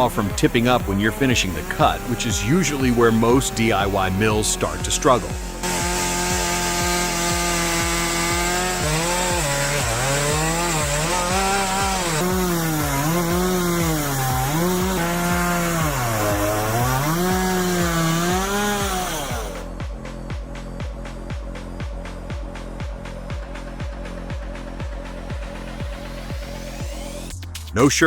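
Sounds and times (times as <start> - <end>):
chainsaw cutting a log: 0.0 - 27.3
music beat: 0.0 - 28.0.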